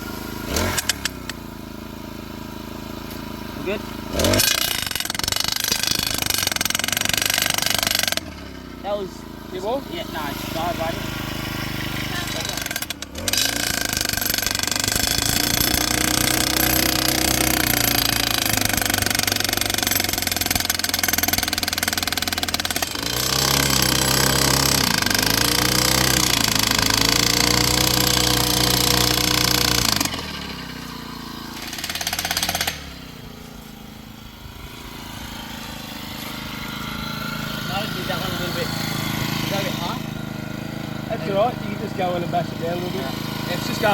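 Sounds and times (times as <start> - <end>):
engine running: 0.0 - 43.9
post driver hammering: 4.2 - 8.5, 11.2 - 33.2.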